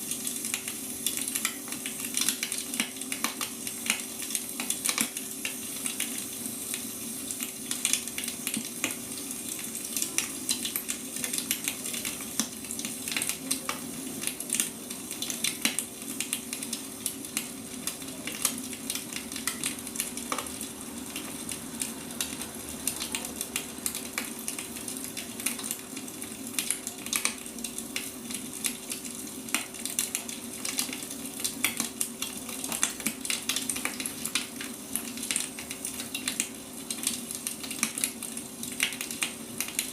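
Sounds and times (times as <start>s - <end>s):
firewood crackling and popping: 0.0s - 39.9s.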